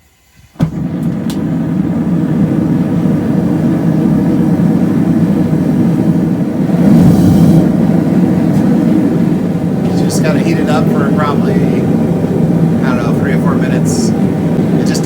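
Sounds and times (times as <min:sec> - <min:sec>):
gas burner flame rushing: 0:00.0 - 0:15.0.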